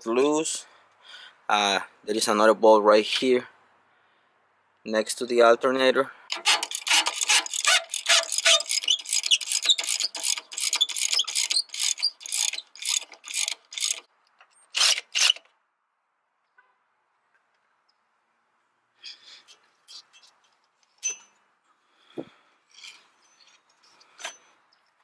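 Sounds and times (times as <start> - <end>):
socket ratchet clicking: 6.3 - 14.1.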